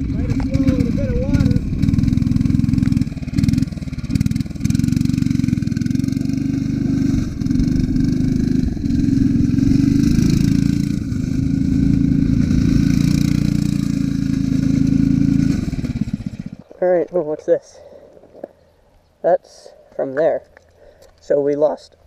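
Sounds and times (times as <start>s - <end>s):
go-kart engine running hard: 0.0s - 16.6s.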